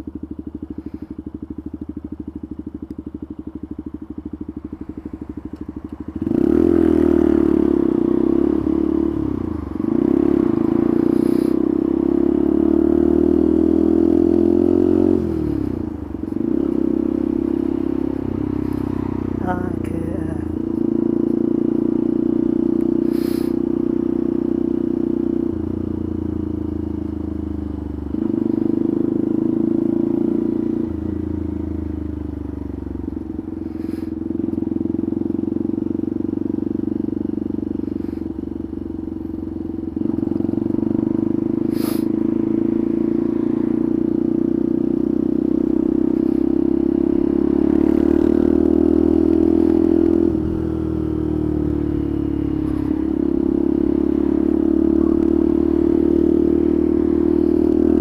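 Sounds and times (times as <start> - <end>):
small motorcycle engine revving: 4.2 - 58.0.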